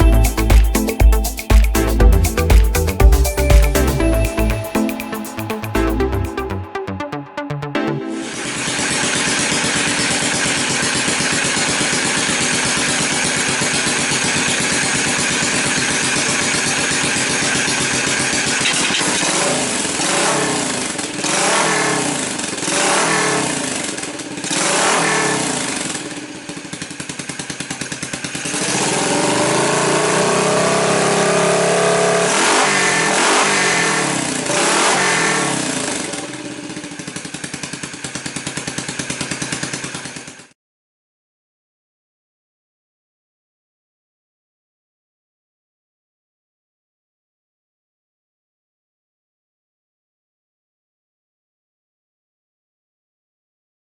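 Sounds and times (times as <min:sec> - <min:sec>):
motorcycle engine revving: 0:08.3 - 0:40.5.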